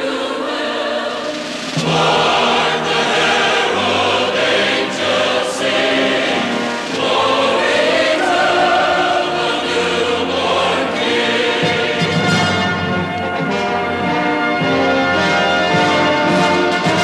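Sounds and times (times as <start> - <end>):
choir singing: 0.0 - 13.5
musical accompaniment: 0.0 - 17.0.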